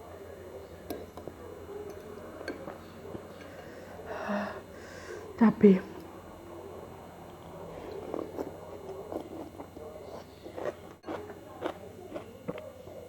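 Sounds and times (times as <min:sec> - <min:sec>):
person chewing: 0:07.4 - 0:13.0.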